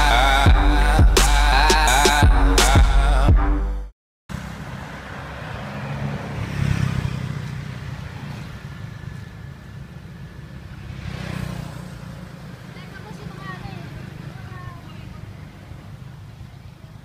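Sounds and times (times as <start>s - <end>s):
electronic music: 0.0s - 3.9s.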